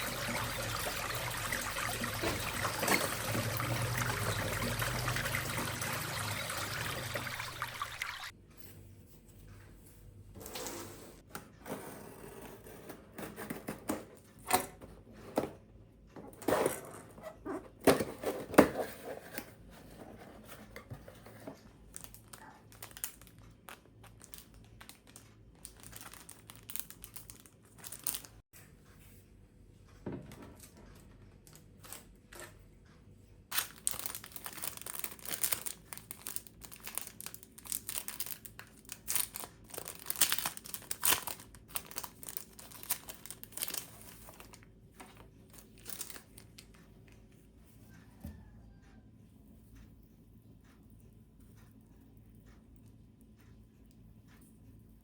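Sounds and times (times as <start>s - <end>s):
crinkling and rustling: 13.2s - 28.4s, 30.2s - 48.2s.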